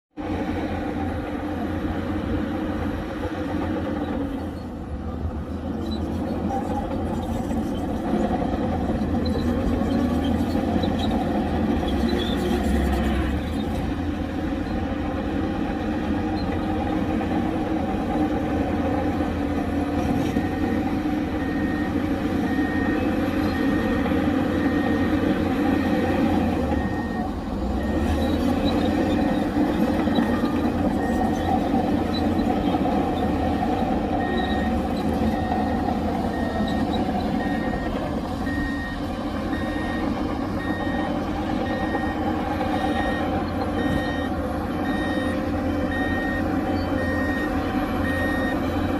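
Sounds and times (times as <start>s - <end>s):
heavy diesel machinery running: 0.2s - 48.9s
reversing back-up alarm beeping: 8.2s - 11.8s, 20.0s - 48.9s.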